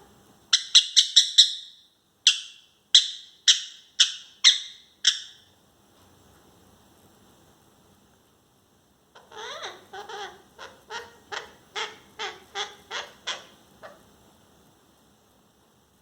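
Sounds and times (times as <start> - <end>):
parrot squawking: 9.2 - 14.1.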